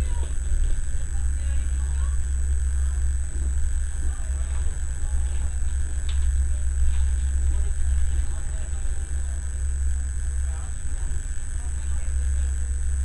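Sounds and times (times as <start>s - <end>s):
high-pitched whine: 0.0s - 13.0s
click: 5.7s - 6.3s.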